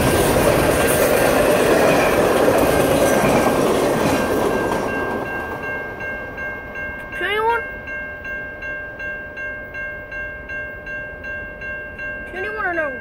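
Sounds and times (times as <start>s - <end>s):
freight train clattering past: 0.0s - 7.6s
crossing warning bell ringing: 0.0s - 13.0s.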